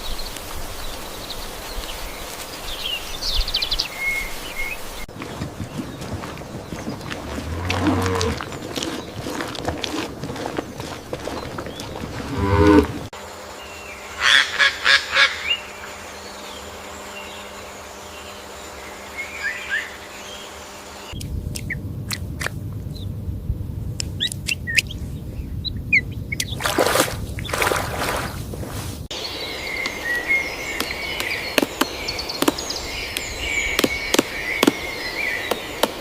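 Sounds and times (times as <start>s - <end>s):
cow mooing: 7.3s - 8.5s, 12.2s - 13.1s.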